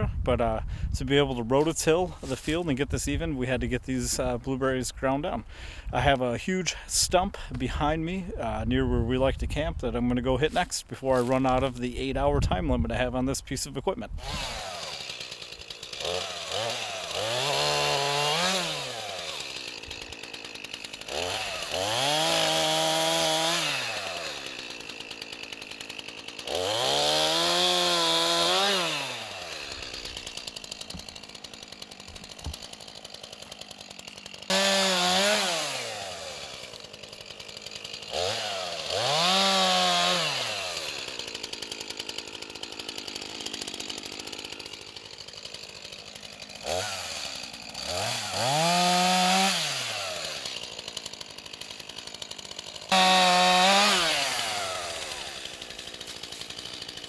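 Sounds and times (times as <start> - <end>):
stump grinder engine revving: 14.1 - 57.0.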